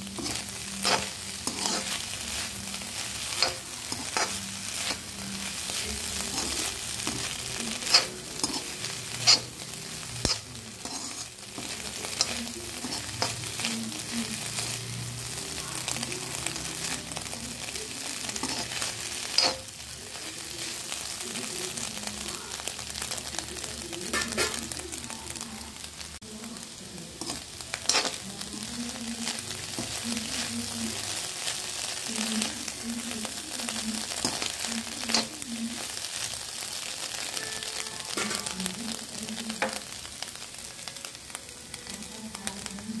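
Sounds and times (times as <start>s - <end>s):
metal spoon scraping a pan: 0.0s - 21.2s, 24.0s - 24.8s, 27.2s - 36.0s, 37.1s - 39.9s
eggs and onions sizzling in a pan: 0.0s - 43.0s.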